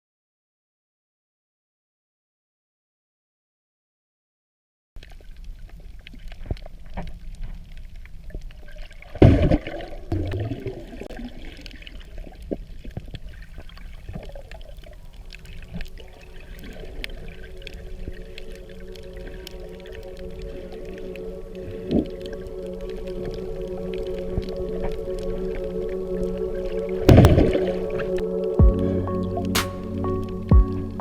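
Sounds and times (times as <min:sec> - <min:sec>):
underwater water sloshing and bubbling: 0:05.0 - 0:29.6
splash of bubbles: 0:08.6 - 0:28.4
soft music: 0:13.4 - 0:31.0.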